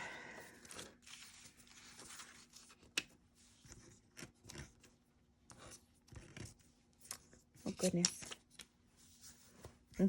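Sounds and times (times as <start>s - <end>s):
paper rustling: 0.6s - 5.0s, 5.6s - 9.8s.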